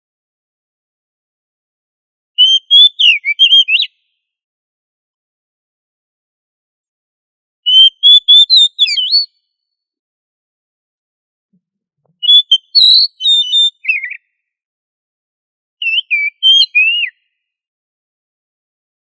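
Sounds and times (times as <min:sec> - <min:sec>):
bird singing whistled notes: 0:02.4 - 0:04.2, 0:07.7 - 0:09.5, 0:12.1 - 0:14.4, 0:15.8 - 0:17.4.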